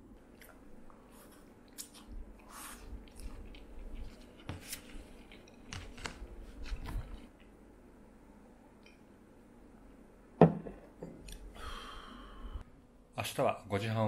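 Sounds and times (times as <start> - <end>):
person chewing: 0.2 - 7.3.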